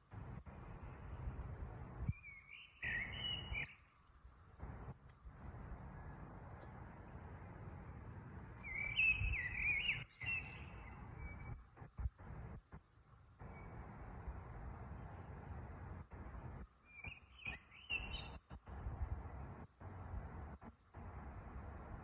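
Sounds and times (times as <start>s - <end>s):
bird singing: 2.1s - 4.0s, 8.5s - 11.6s, 13.4s - 13.9s, 16.8s - 18.6s.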